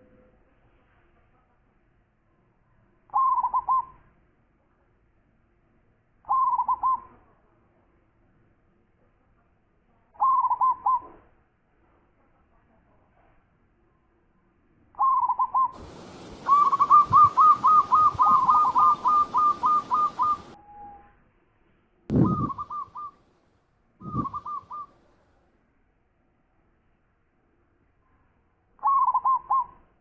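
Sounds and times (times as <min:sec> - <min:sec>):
dove cooing: 0:03.1 - 0:03.9, 0:06.3 - 0:07.1, 0:10.2 - 0:11.0, 0:15.0 - 0:20.6, 0:22.1 - 0:23.2, 0:24.0 - 0:24.9, 0:28.8 - 0:29.8.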